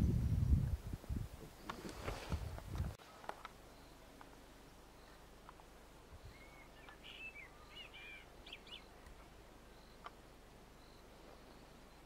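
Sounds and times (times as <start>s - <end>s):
faint bird calls: 6.1s - 12.0s.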